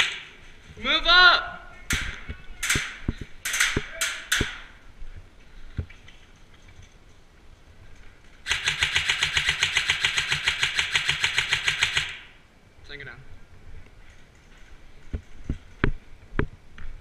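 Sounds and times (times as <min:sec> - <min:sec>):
airsoft gun firing shots: 0:00.0 - 0:00.3, 0:01.9 - 0:04.7, 0:08.5 - 0:12.4
rapid rattle of full-auto burst: 0:08.5 - 0:12.3.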